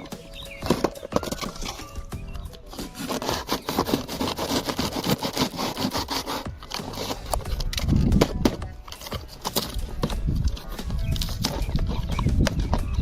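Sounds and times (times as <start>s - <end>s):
hard objects scraping and clicking: 0.0s - 13.0s.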